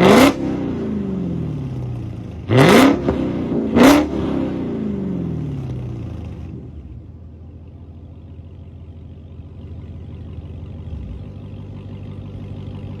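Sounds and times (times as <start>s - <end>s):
car engine revving: 0.0s - 7.0s
car engine idling: 4.7s - 13.0s.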